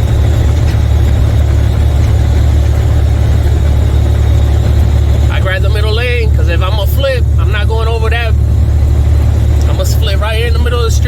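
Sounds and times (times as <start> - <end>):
truck diesel engine droning: 0.0 - 11.0.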